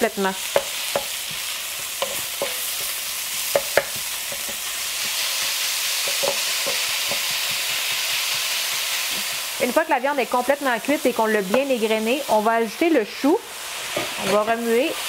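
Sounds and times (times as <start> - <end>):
meat sizzling in a wok: 0.0 - 15.0
spatula scraping and tapping pan: 0.4 - 9.5.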